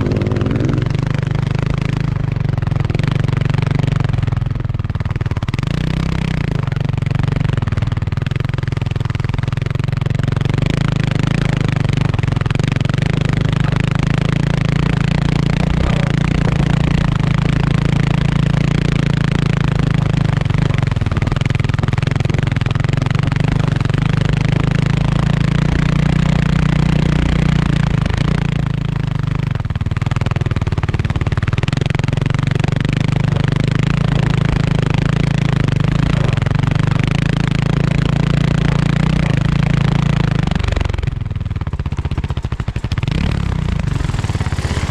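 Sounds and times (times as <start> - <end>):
motorcycle engine running: 0.0 - 44.9
riding noise: 11.3 - 19.1, 41.8 - 44.9.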